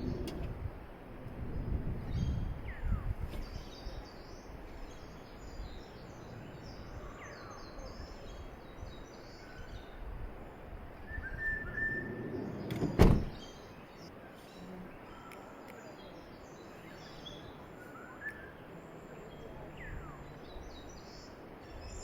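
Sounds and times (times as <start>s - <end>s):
birds chirping: 0.0s - 0.4s, 1.5s - 22.0s
outdoor background noise: 0.0s - 22.0s.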